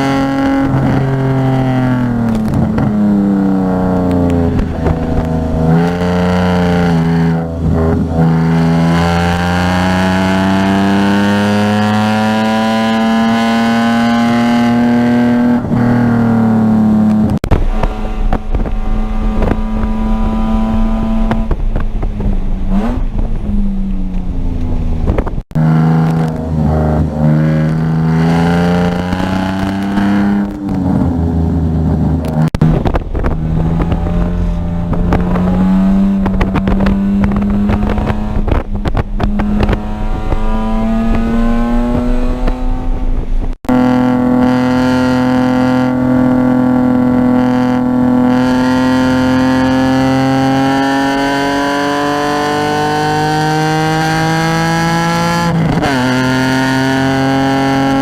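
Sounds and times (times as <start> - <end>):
racing car engine revving: 0.0 - 23.5, 24.5 - 58.0
road and wind rumble: 0.0 - 58.0.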